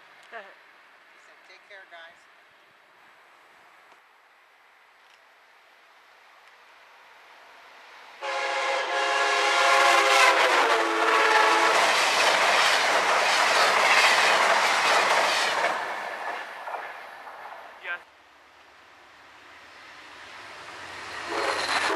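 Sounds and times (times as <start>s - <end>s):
train rushing and clattering past: 8.0s - 18.0s, 19.3s - 21.9s
train horn chord: 8.2s - 11.9s.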